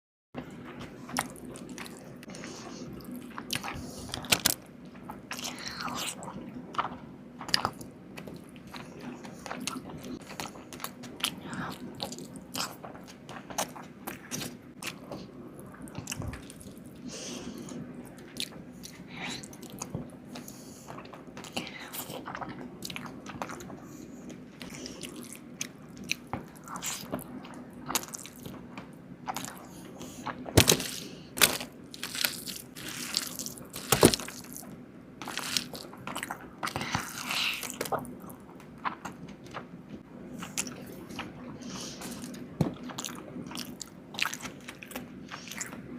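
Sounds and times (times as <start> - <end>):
low steady hum: 0.4 - 45.9
chewing and crunching: 0.6 - 45.9.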